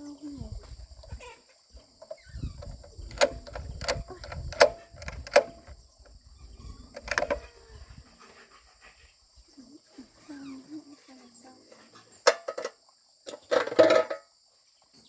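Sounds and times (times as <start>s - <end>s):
low rumbling handling noise: 2.0s - 8.0s.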